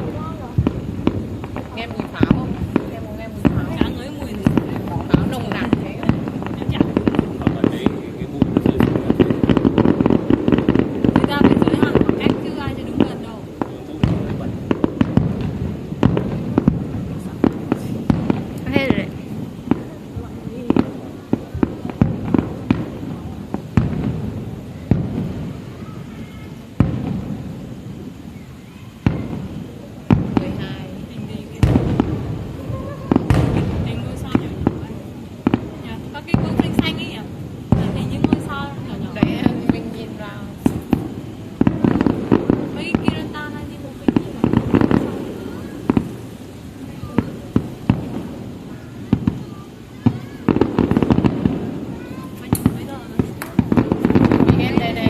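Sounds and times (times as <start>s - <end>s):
low rolling rumble: 0.0s - 25.7s
fireworks booming: 0.0s - 55.0s.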